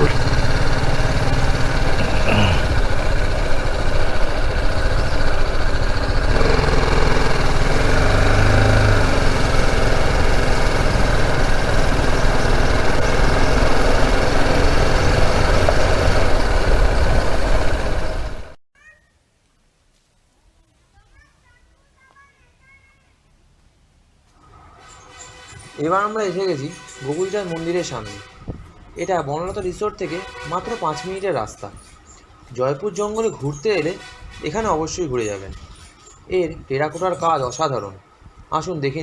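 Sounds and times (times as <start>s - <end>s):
motorcycle engine running: 0.0s - 18.6s
road noise: 0.0s - 18.6s, 24.3s - 39.0s
wind noise: 28.3s - 30.0s, 38.1s - 38.8s.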